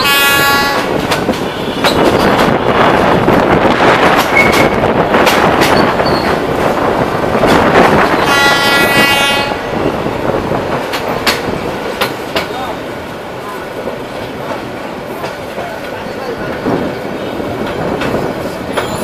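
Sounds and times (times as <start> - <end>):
train horn blast: 0.0 - 1.0, 8.1 - 9.7
train wheels clattering on rails: 0.0 - 19.0.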